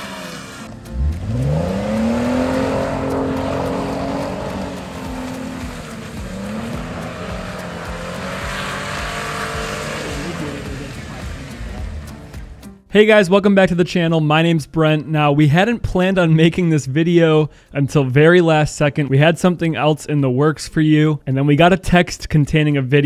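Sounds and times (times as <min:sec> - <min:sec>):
car engine revving: 0:00.0 - 0:12.7.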